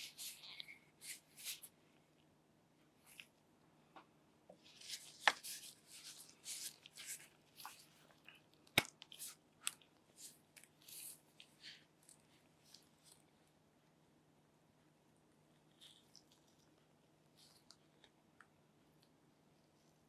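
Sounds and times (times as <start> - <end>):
crinkling and rustling: 4.5 - 13.3.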